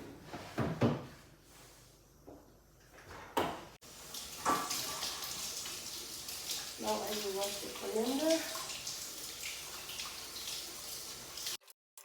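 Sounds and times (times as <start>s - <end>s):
kitchen tap running: 3.8s - 11.6s.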